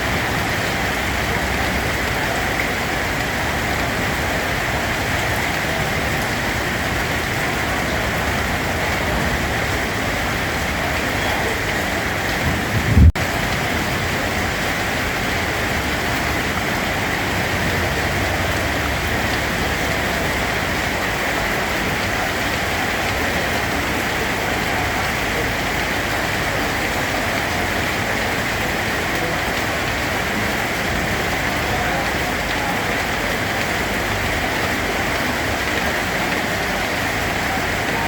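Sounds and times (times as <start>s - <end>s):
steady rainfall: 0.0s - 38.0s.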